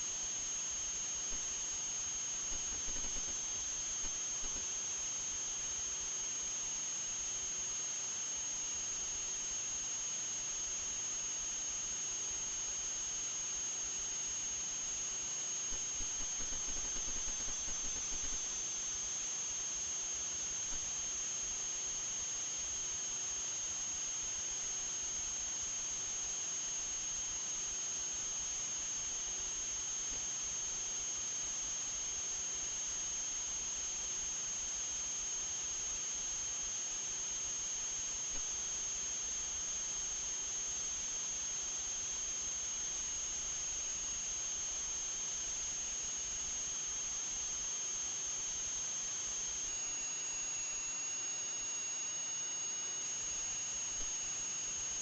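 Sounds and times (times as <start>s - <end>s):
steady high-pitched whine: 0.0s - 55.0s
constant hiss: 1.3s - 4.6s, 15.7s - 18.6s.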